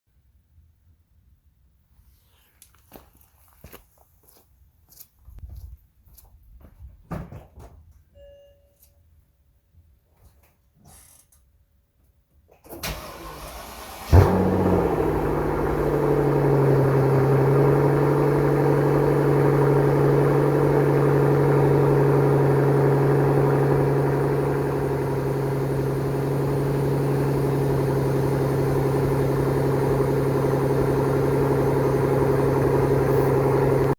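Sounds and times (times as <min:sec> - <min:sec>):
car engine idling fast: 0:13.0 - 0:33.9.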